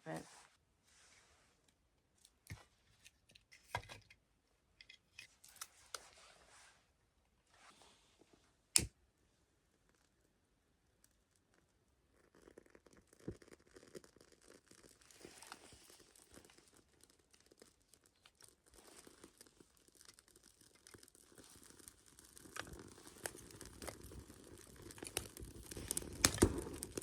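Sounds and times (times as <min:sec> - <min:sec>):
kindling fire crackling: 0:10.8 - 0:27.0.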